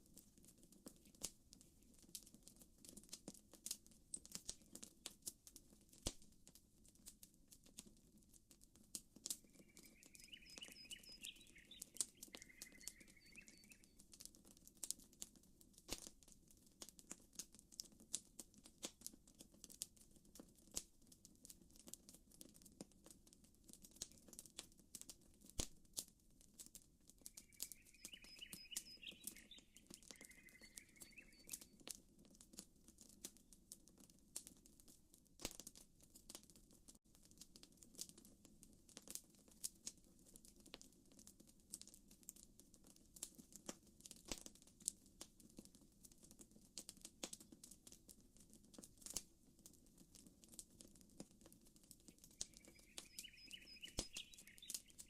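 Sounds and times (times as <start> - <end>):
campfire crackling and popping: 0.1 - 55.0
chirping bird call: 9.6 - 13.9, 27.4 - 31.6, 52.4 - 55.0.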